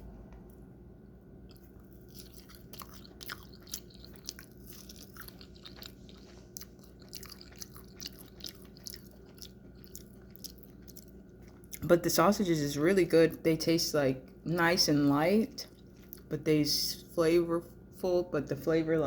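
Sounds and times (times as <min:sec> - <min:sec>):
close-up chewing: 0:01.4 - 0:11.9, 0:15.5 - 0:16.3.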